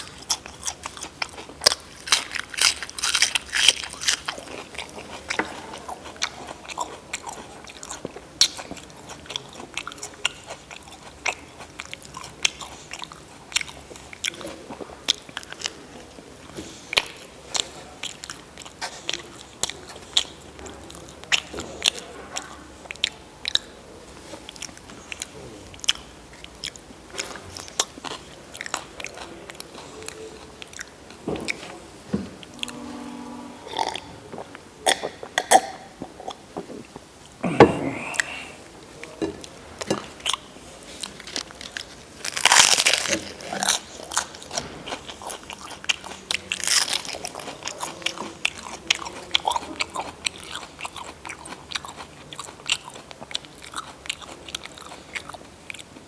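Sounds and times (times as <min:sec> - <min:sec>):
person chewing crunchy food: 0:00.0 - 0:15.8, 0:16.4 - 0:31.8, 0:33.8 - 0:56.0.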